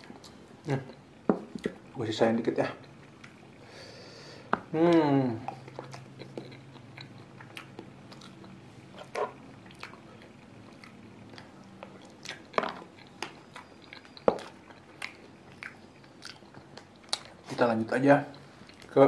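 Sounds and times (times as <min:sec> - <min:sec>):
wet chewing and lip smacks: 0:05.5 - 0:08.6, 0:09.6 - 0:17.5.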